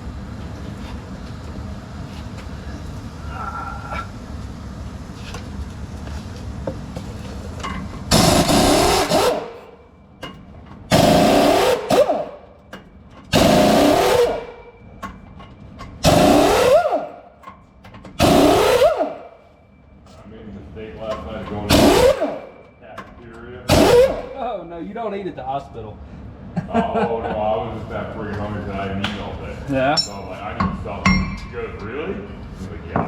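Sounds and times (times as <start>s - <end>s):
air impact wrench bursts: 8.1s - 9.6s, 10.9s - 12.4s, 13.3s - 14.6s, 16.0s - 17.2s, 18.2s - 19.3s, 21.7s - 22.6s, 23.7s - 24.4s.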